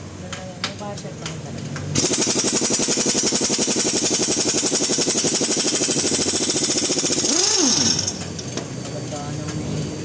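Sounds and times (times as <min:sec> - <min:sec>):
pneumatic tool hammering: 0:01.8 - 0:09.0.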